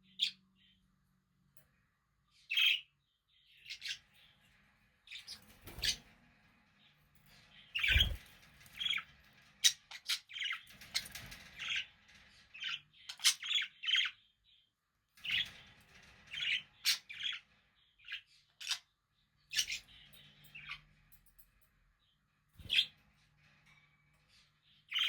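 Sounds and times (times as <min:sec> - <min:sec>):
parakeet chirping: 0:03.6 - 0:04.0, 0:07.7 - 0:08.2, 0:12.6 - 0:14.1, 0:19.5 - 0:19.8.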